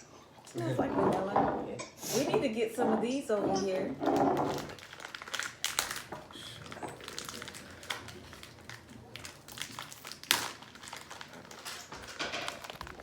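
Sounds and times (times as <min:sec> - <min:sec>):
snack packaging crinkling: 0:03.7 - 0:13.0.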